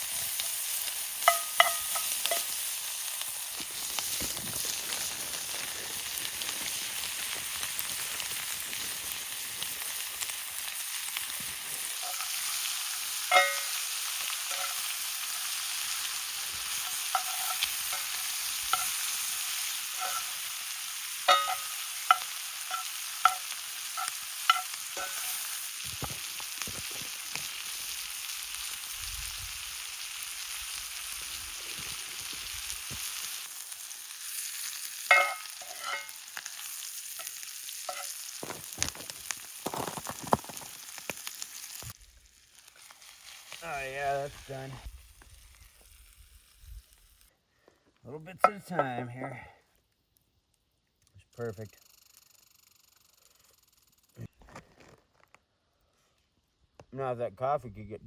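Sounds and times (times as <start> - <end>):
food sizzling in a skillet: 0.0 - 47.3
metal utensil clinking on pan: 1.2 - 2.7, 12.0 - 12.5, 13.2 - 14.9, 16.7 - 19.1, 19.9 - 20.5, 21.2 - 25.5, 35.0 - 36.3, 37.2 - 38.2.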